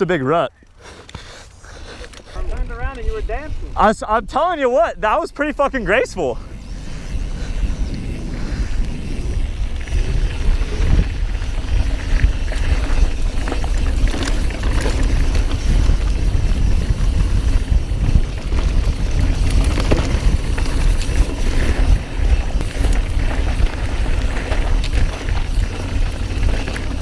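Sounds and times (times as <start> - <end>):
wind rumbling on microphone: 1.3 - 27.0
bike knocks and rattles: 11.0 - 27.0.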